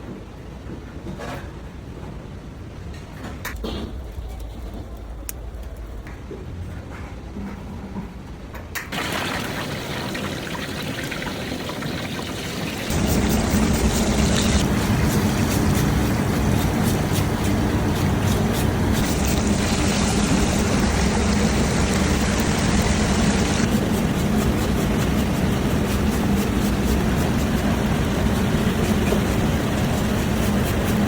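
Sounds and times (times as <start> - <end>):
hot oil sizzling and crackling: 8.9 - 31.0.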